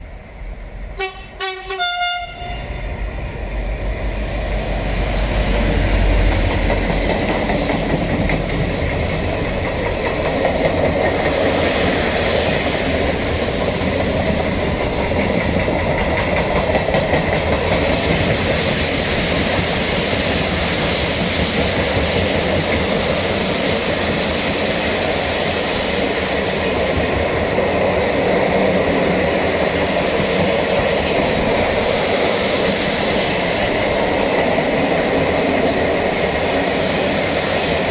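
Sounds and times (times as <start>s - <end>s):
freight train rumbling past: 0.0s - 37.9s
train wheels on rails: 0.0s - 37.9s
locomotive horn blasts: 1.0s - 2.9s.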